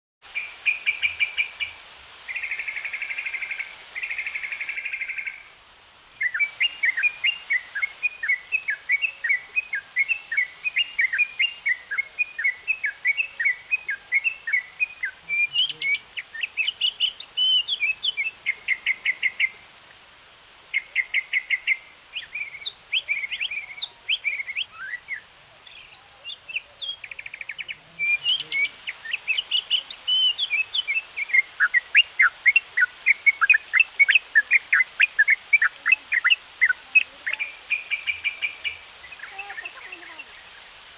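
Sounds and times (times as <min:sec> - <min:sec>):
birds singing: 0:06.2 - 0:19.6, 0:20.7 - 0:40.8.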